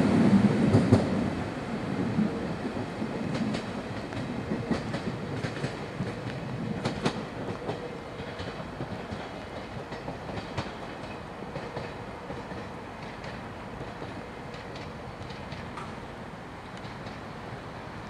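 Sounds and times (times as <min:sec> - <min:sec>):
train rumbling along track: 0:00.0 - 0:18.0
wheels clicking over rail joints: 0:02.7 - 0:16.1.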